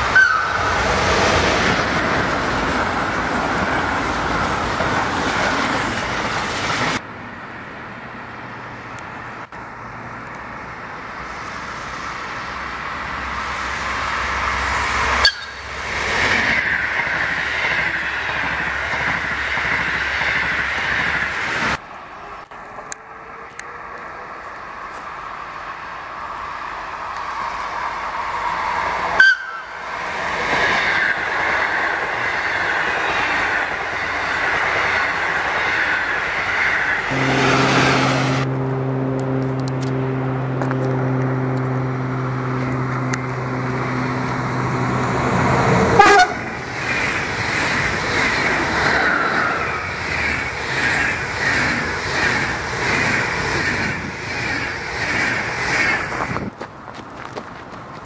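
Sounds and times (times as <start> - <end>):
train wheels rushing on rails: 0.0 - 7.0, 10.5 - 38.5, 39.2 - 58.0
locomotive horn blast: 37.1 - 44.8, 45.7 - 46.7.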